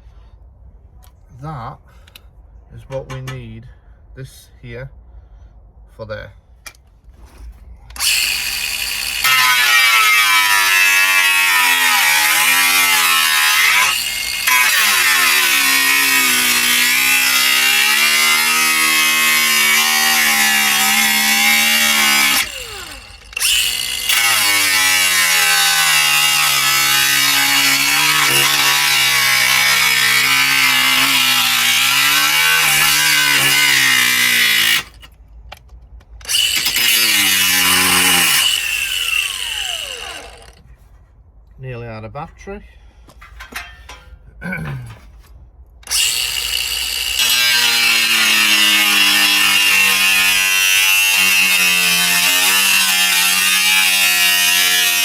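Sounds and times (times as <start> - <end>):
angle grinder cutting sheet steel: 8.0 - 35.1, 36.2 - 40.6, 45.8 - 55.0.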